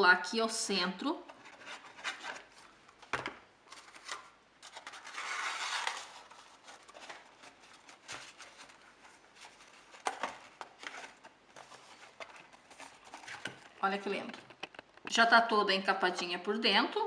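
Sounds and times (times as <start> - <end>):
paper rustling and rubbing: 1.3 - 2.7, 3.7 - 14.8
scratchy rub: 4.8 - 9.9.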